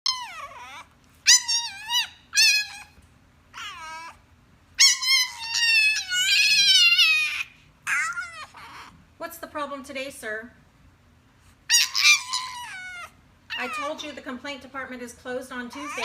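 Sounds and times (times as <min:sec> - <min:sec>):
puppy whining: 0:00.0 - 0:09.2, 0:11.6 - 0:14.4, 0:15.7 - 0:16.0.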